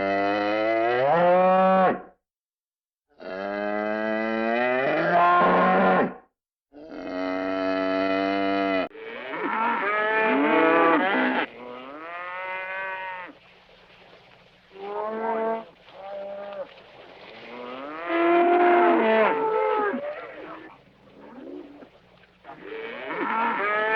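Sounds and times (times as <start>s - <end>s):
cartoon cow mooing: 3.1s - 6.2s, 6.8s - 13.1s, 17.5s - 20.6s, 22.5s - 23.9s.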